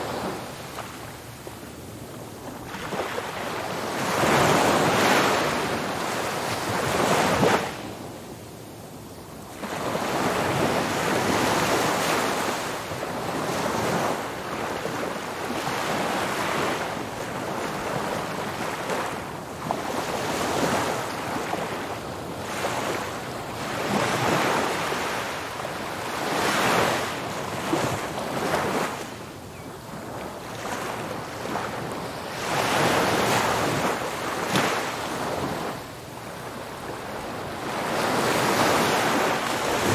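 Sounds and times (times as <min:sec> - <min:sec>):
ocean waves breaking on beach: 0:09.6 - 0:39.9
wind rumble on microphone: 0:36.4 - 0:39.9.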